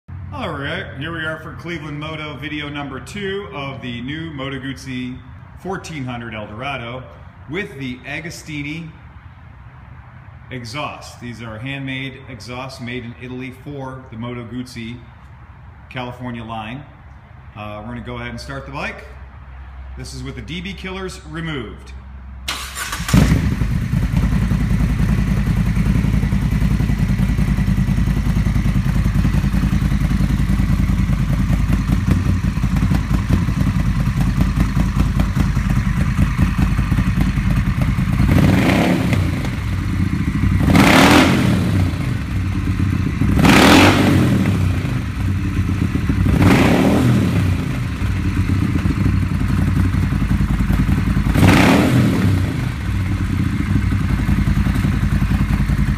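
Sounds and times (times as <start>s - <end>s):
motorcycle engine idling and revving: 0.1s - 6.6s, 22.5s - 55.9s.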